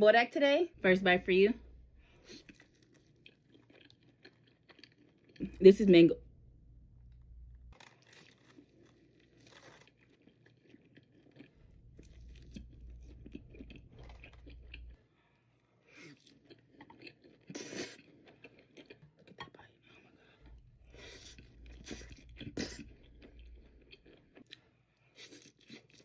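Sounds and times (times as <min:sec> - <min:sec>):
chewing and crunching: 0:02.1 - 0:05.6, 0:07.1 - 0:26.0
crunchy bite: 0:07.7 - 0:15.0.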